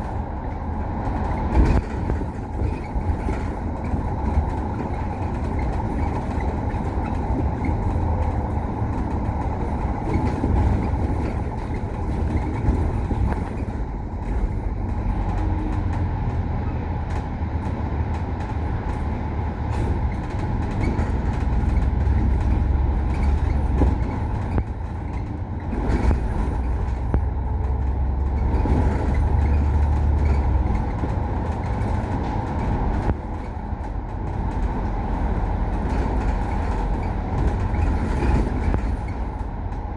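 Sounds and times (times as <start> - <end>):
bus engine drone: 0.0 - 39.9
road noise: 0.0 - 39.9
knocks and rattles: 17.1 - 39.8.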